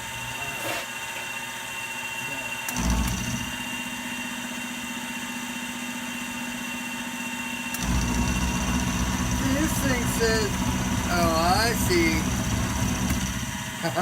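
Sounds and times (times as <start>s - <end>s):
milling machine motor humming: 2.5s - 6.3s, 7.6s - 14.0s.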